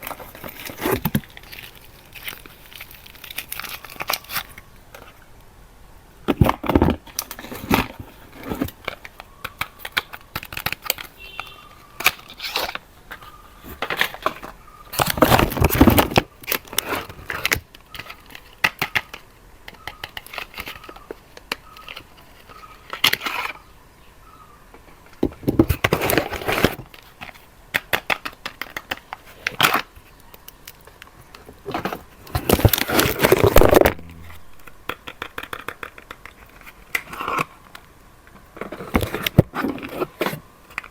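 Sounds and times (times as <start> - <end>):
soap wrapping crinkling and tearing: 0.0 - 5.2.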